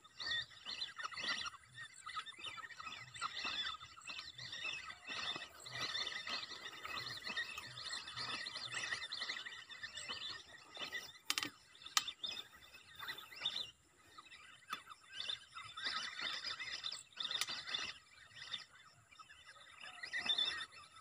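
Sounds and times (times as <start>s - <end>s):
small birds twittering: 0.0s - 21.0s
sharp clicks: 11.2s - 12.4s.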